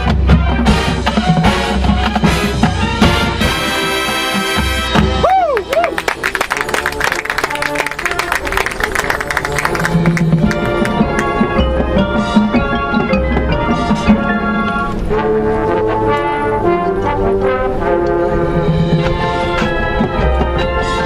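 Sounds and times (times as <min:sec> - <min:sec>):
brass chords: 0:00.0 - 0:05.2, 0:05.9 - 0:21.0
mallet percussion: 0:08.1 - 0:14.8
low drums: 0:09.6 - 0:15.9.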